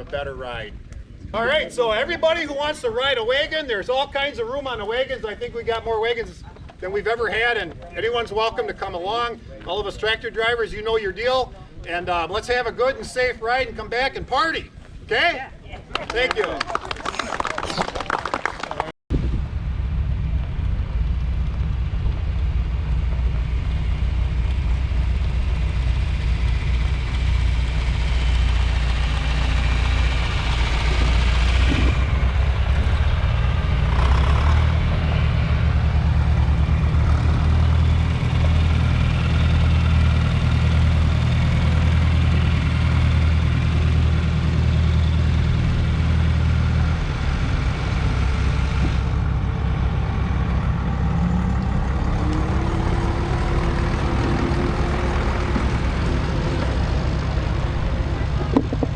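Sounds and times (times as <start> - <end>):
heavy vehicle engine idling: 19.6 - 58.9.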